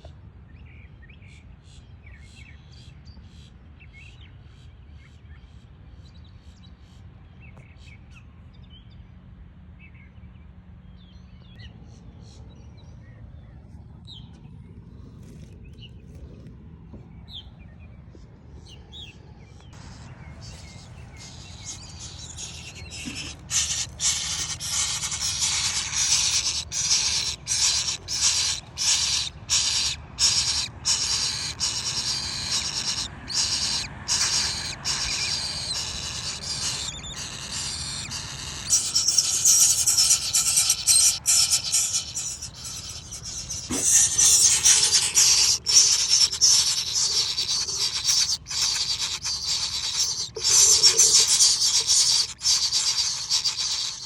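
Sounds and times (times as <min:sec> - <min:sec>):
rubbing and scraping noise: 0:20.4 - 0:35.4, 0:38.6 - 0:54.0.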